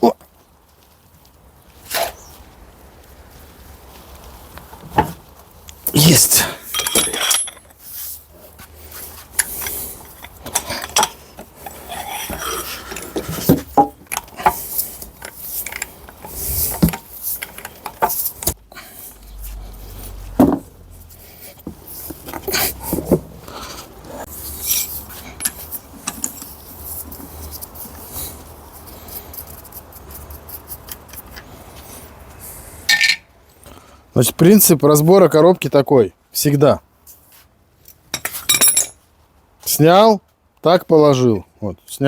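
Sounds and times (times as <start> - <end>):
metal parts clinking and scraping: 6.0 - 8.3, 9.0 - 20.6, 24.2 - 31.8, 32.8 - 33.3, 37.9 - 39.0.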